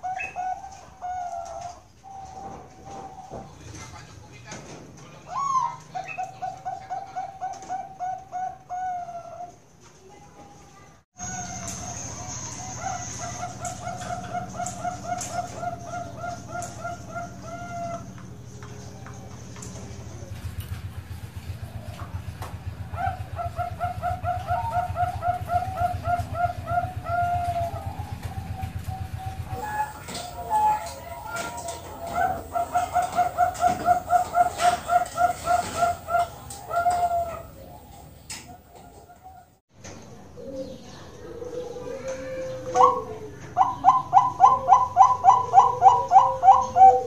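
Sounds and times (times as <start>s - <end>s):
dove cooing: 0.0s - 3.8s, 5.3s - 9.6s, 12.3s - 39.6s, 40.4s - 47.0s
steady low hum: 11.2s - 47.0s.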